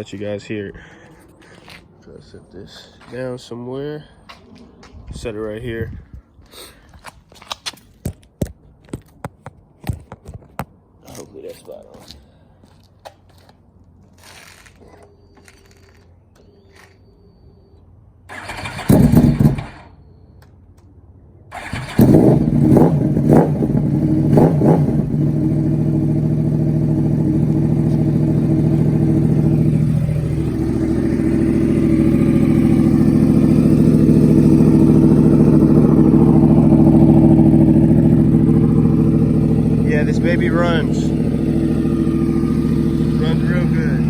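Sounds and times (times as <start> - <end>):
motorcycle engine starting and revving: 18.3 - 20.1, 21.5 - 44.0
motorcycle engine idling: 21.5 - 44.0.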